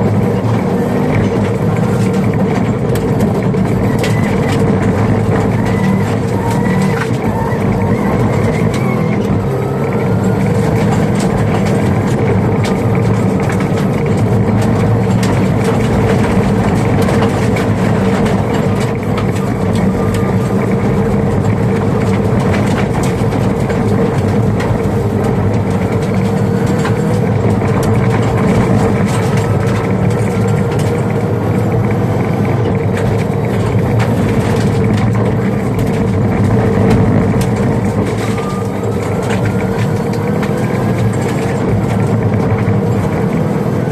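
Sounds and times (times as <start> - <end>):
car engine and road noise: 0.0 - 43.9
gravel hitting car: 0.0 - 43.9.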